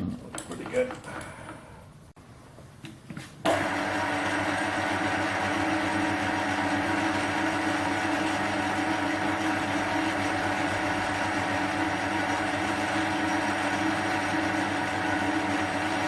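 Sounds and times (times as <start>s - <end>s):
metal lathe running: 3.6s - 16.0s.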